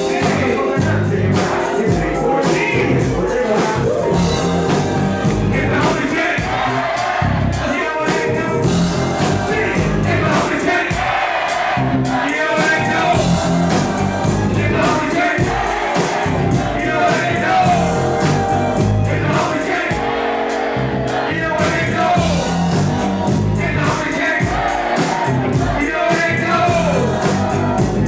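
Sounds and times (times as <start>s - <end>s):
person singing: 0.0s - 4.7s
crowd noise: 0.0s - 28.0s
live music over loudspeakers: 0.0s - 28.0s.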